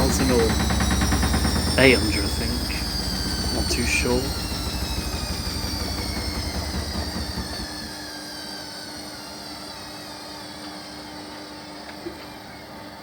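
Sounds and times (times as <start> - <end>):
low drum rumble: 0.0 - 7.9
steady hum: 0.0 - 8.0
washer dryer motor whine: 0.0 - 13.0.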